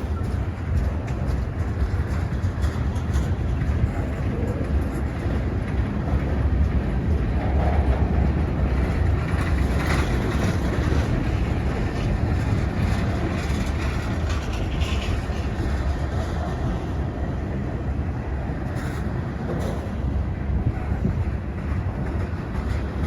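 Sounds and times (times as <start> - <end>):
freight train rumbling on rails: 0.0 - 23.0.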